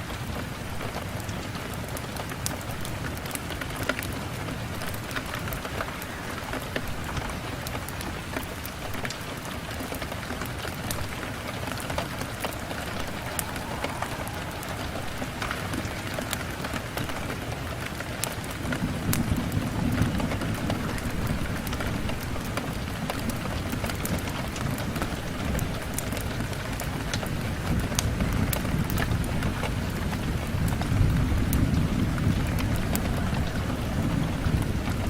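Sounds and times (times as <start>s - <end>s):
rain on a window: 0.0s - 35.0s
deep rumble: 12.0s - 17.4s.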